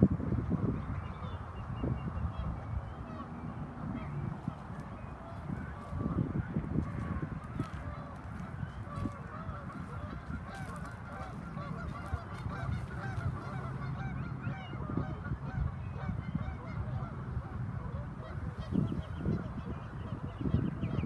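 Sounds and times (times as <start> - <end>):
waterbirds calling: 0.8 - 21.0
steady low rumble: 2.4 - 21.0.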